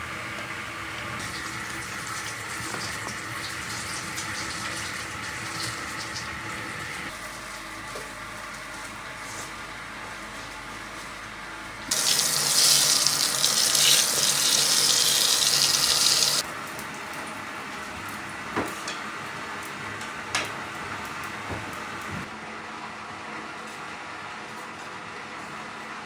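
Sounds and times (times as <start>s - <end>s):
tap water running: 0.2s - 7.1s, 11.9s - 17.4s.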